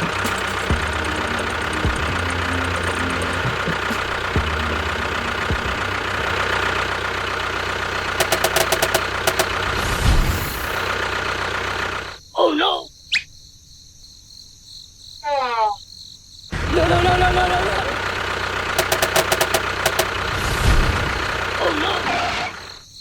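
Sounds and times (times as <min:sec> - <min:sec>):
vehicle engine humming: 0:00.0 - 0:12.2, 0:16.5 - 0:22.8
quick run of clicks: 0:08.1 - 0:10.2, 0:18.7 - 0:21.4.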